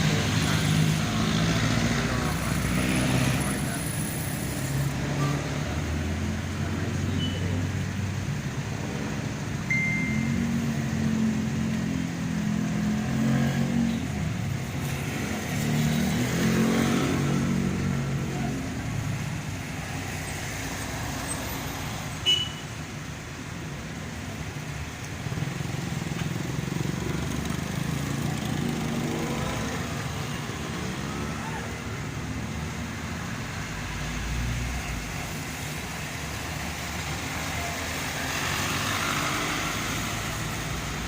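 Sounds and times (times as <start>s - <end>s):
vehicle engines in traffic: 0.0s - 41.0s.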